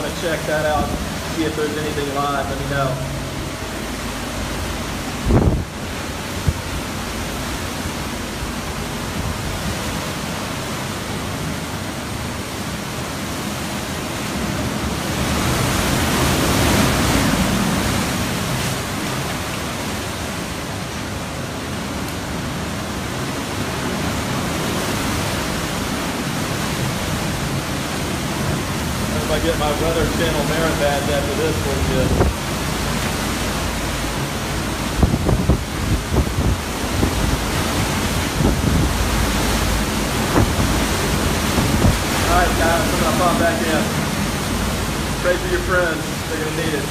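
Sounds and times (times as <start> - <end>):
strong wind rushing: 0.0 - 7.4, 29.0 - 46.9
driving rain: 0.0 - 46.9.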